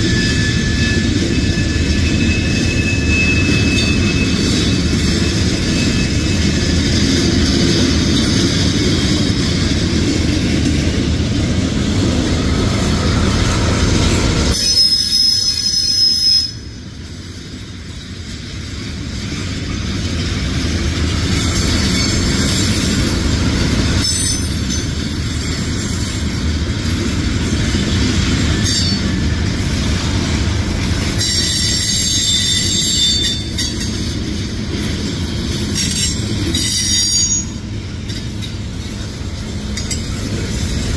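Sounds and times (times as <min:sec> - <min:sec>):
high-pitched wheel squeal: 0:00.0 - 0:06.7, 0:14.5 - 0:16.8, 0:31.2 - 0:33.8, 0:35.8 - 0:37.6
steel wheels rumbling on rail: 0:00.0 - 0:40.9.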